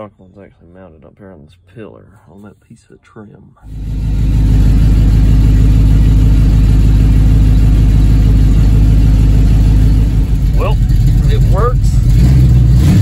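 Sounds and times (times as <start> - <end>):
car engine idling: 3.6 - 13.0.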